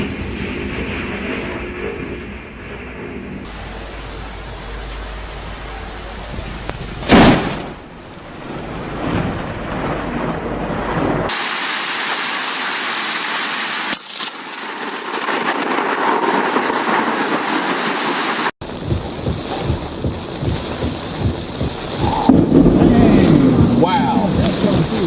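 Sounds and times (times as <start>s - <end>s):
thunder rumbling: 0.0s - 11.3s, 18.6s - 25.0s
rain falling: 3.5s - 14.8s, 15.4s - 25.0s.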